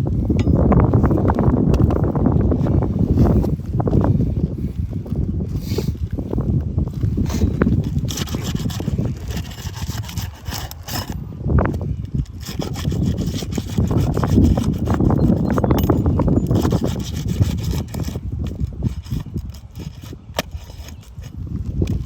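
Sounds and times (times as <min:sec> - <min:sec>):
scraping on roof shingles: 0:07.7 - 0:11.2.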